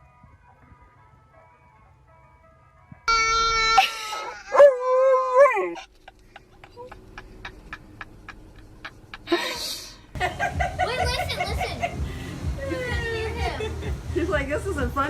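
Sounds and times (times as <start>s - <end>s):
dog howling: 3.1s - 5.9s.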